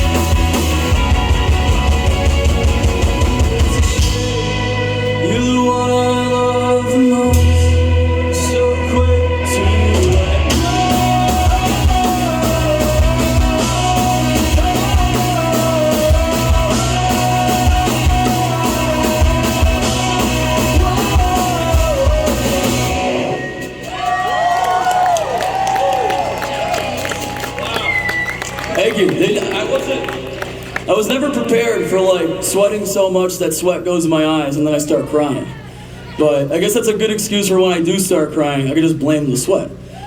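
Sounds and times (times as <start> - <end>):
drum kit: 0.0 - 5.5, 9.4 - 30.9
electric guitar: 0.0 - 30.9.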